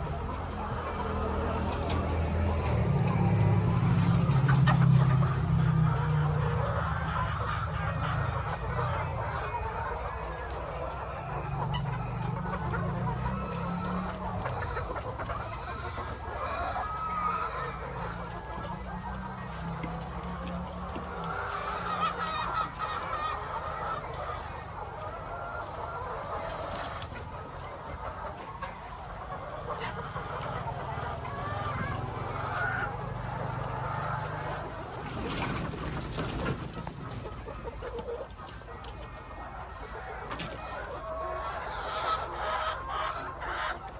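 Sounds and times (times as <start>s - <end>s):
hens clucking: 0.0s - 43.9s.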